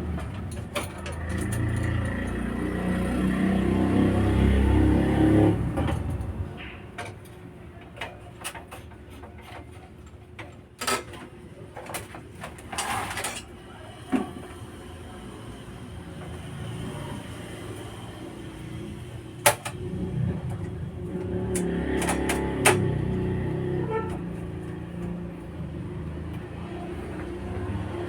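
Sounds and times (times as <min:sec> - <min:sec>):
vehicle engine rumble: 0:16.0 - 0:28.0.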